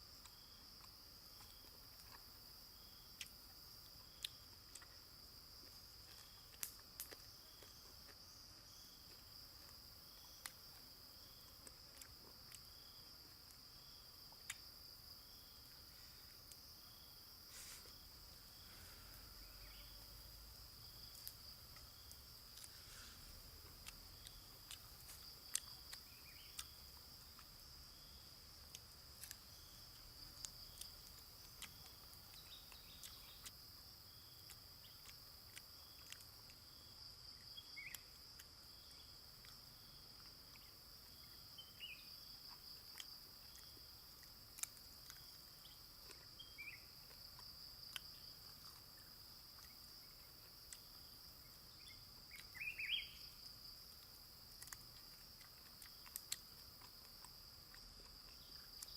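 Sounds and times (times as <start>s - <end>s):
high pulsing insect chirr: 0.0s - 58.9s
bird chirps: 51.8s - 53.3s.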